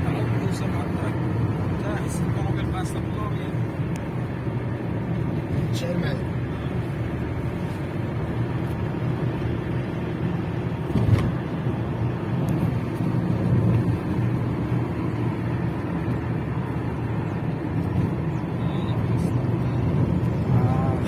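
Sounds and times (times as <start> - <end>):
vehicle engine droning: 0.0 - 21.0.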